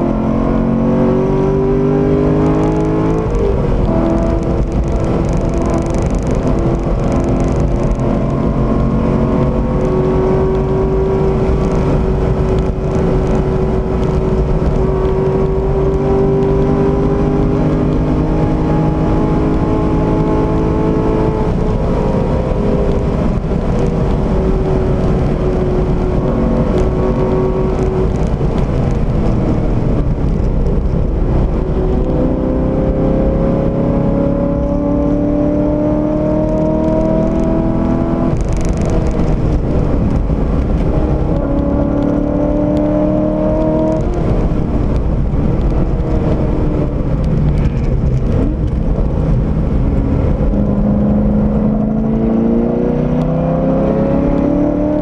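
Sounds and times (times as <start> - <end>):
car engine accelerating hard: 0.0 - 55.0
road and wind noise: 0.0 - 55.0.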